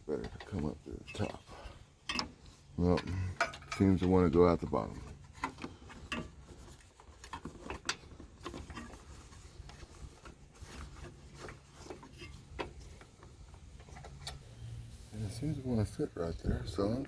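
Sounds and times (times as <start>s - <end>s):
hands rubbing wiring: 3.6s - 15.6s.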